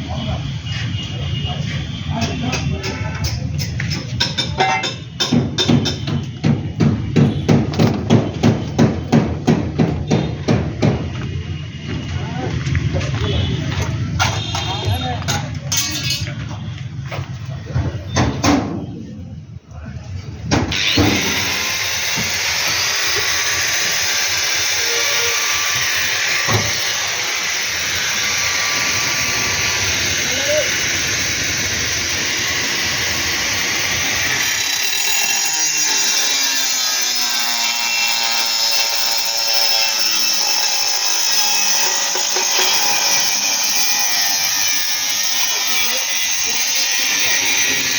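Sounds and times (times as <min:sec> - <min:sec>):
power tool running: 0:20.7 - 0:47.9.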